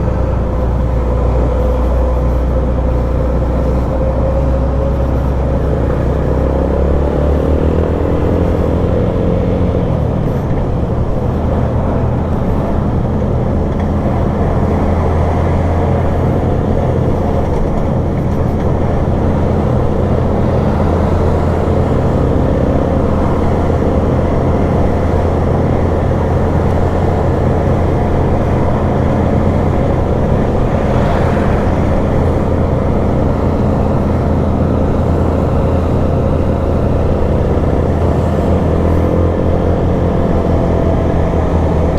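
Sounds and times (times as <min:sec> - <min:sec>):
vehicle engine drone: 0:00.0 - 0:41.9.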